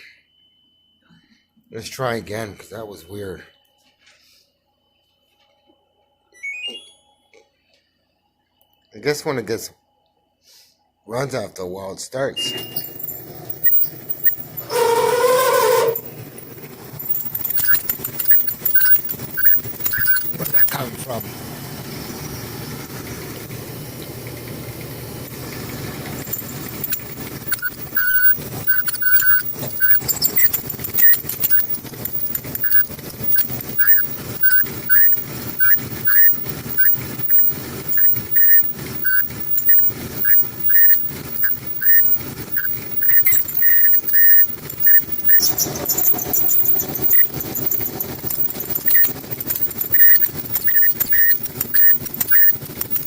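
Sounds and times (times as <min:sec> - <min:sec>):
short high-pitched squeals: 0:12.4 - 0:21.2, 0:26.1 - 0:53.0.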